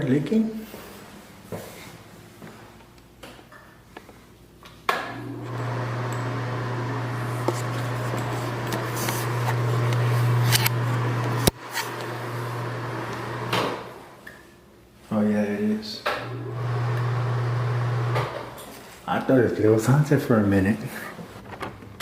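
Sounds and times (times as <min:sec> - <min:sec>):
machine humming and rushing: 0:05.2 - 0:13.7.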